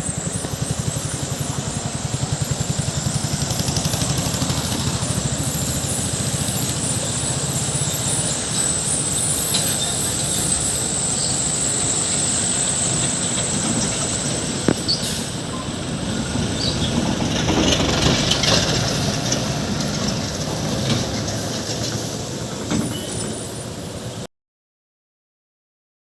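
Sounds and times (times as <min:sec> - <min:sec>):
tyre and road noise: 0:00.0 - 0:24.2
diesel engine labouring: 0:00.0 - 0:24.3
short high squeaks: 0:04.0 - 0:17.0, 0:22.7 - 0:24.0.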